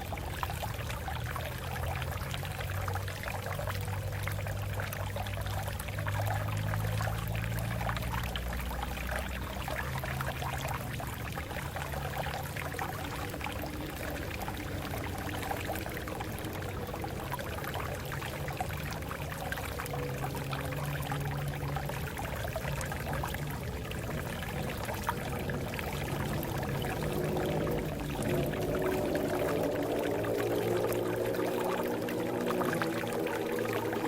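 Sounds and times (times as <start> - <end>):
water flowing over rocks: 0.0 - 34.0.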